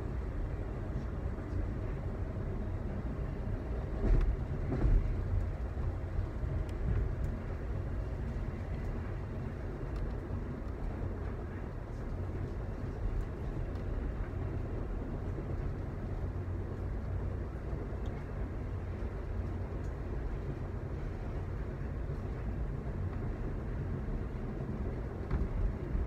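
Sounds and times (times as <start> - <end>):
train rumble from inside: 0.0 - 26.0.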